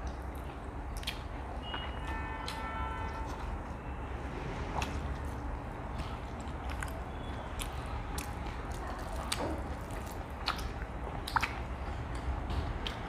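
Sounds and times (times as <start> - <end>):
wet chewing and lip smacks: 0.0 - 3.5, 4.8 - 13.0.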